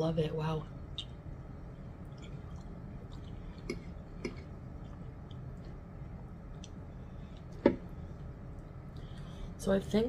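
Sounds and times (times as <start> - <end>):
chewing with mouth closed: 2.0 - 5.8.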